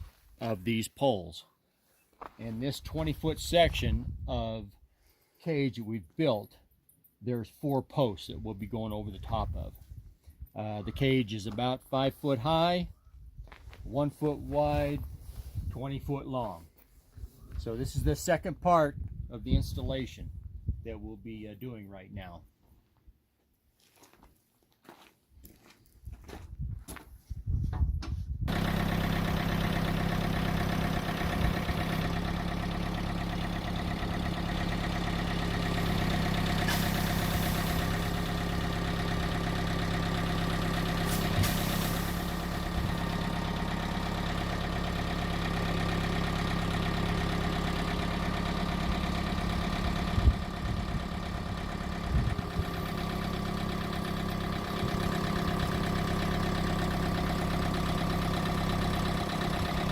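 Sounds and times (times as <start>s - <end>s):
engine idling: 28.5s - 59.9s.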